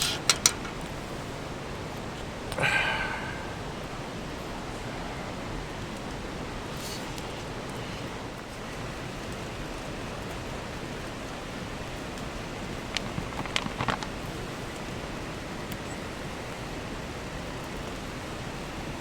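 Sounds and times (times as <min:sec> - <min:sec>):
mountain stream flowing: 0:00.0 - 0:06.8, 0:10.4 - 0:15.5.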